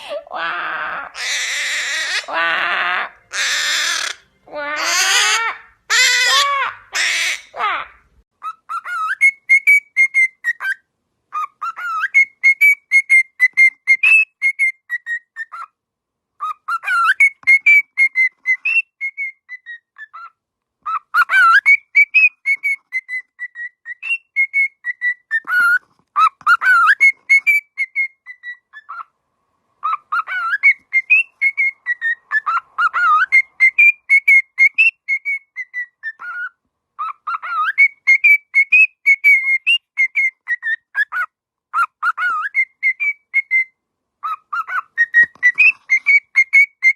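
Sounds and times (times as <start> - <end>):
harsh bird calls: 0.0 - 15.8, 29.8 - 46.9.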